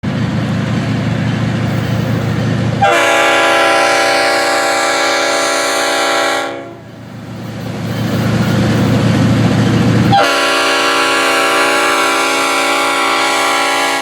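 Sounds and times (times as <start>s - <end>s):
train rumble: 0.0s - 14.0s
locomotive horn chord: 2.8s - 6.9s, 10.1s - 14.0s.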